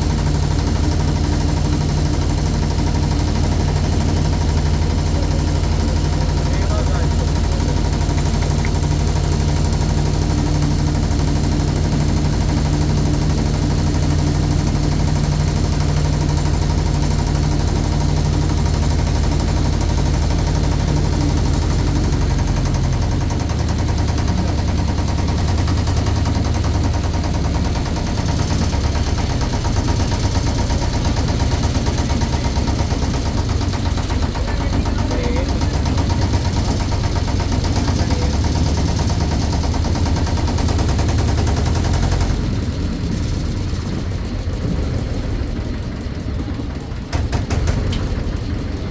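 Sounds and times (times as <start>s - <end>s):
motorboat engine chugging: 0.0s - 48.9s.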